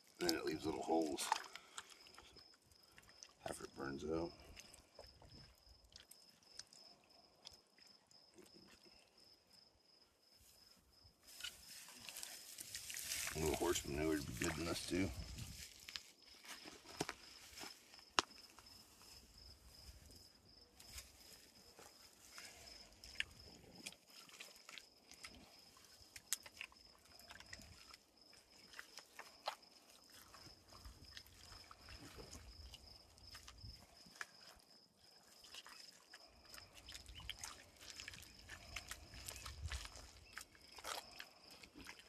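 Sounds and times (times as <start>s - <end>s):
wet mud squelching by hand: 0.0s - 9.0s, 11.3s - 42.0s.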